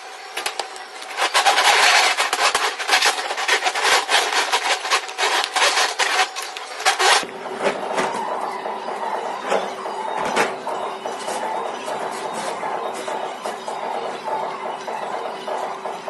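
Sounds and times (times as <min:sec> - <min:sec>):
tool scraping a surface: 0:01.0 - 0:07.2.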